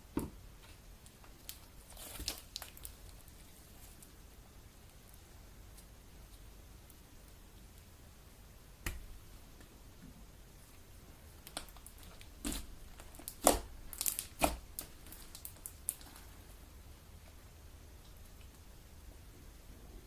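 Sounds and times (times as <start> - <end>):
slime squelching and popping: 1.0 - 3.4, 11.4 - 16.2.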